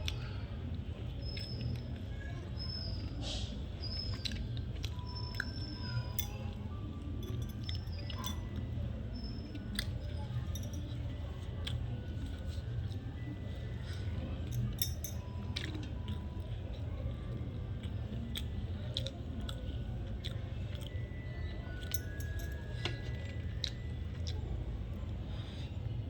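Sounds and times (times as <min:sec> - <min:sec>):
person chewing: 0:09.5 - 0:09.9, 0:17.8 - 0:21.0, 0:23.1 - 0:24.4.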